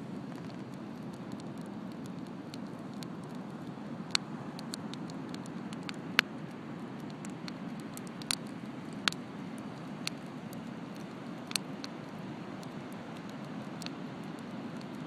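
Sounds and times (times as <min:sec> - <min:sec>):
wood bonfire crackling: 0:00.0 - 0:15.0.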